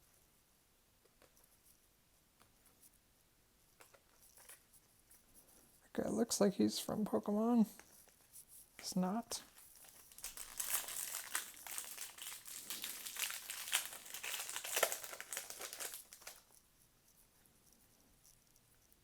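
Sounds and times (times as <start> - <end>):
card pack wrapper crinkling: 9.4 - 16.6.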